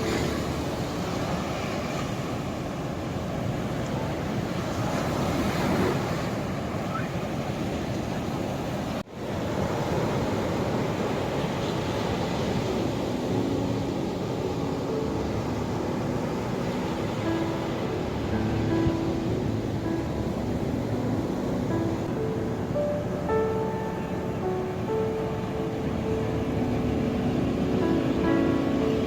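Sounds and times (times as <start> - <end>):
ocean waves washing onto shore: 0.0 - 29.0.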